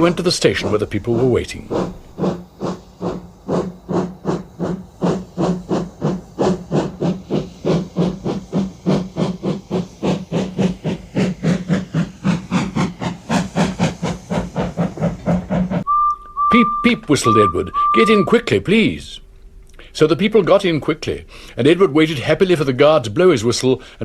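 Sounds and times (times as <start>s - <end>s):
steam locomotive chuffing: 0.0s - 19.0s.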